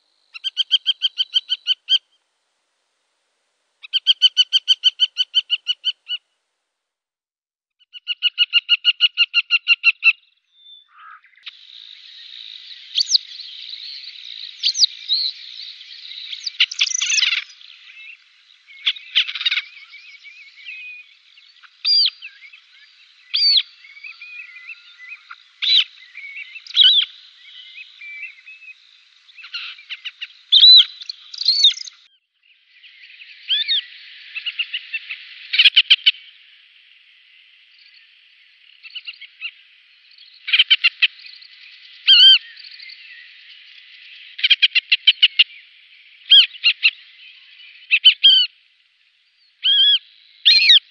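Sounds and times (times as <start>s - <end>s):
harrier chattering calls: 29.4s - 31.9s.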